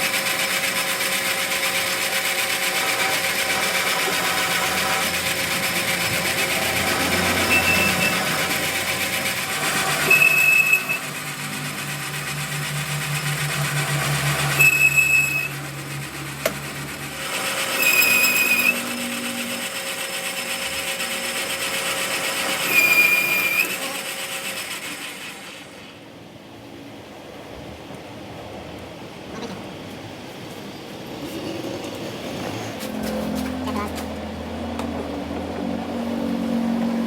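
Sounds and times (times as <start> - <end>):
workshop machine running: 0.0 - 37.0
short high squeal: 7.4 - 8.3, 9.8 - 11.5, 13.6 - 15.7, 17.8 - 19.5, 22.6 - 23.8
low hum: 11.0 - 17.4.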